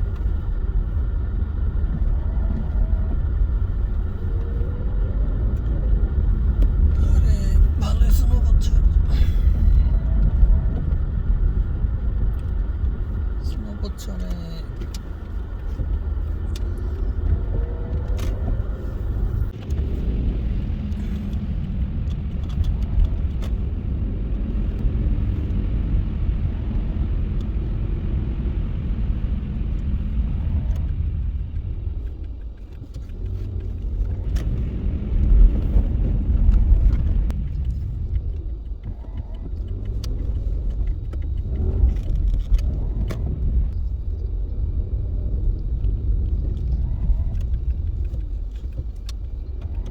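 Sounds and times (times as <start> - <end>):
car engine and road noise: 0.0 - 49.9
faint clicks: 36.3 - 43.9.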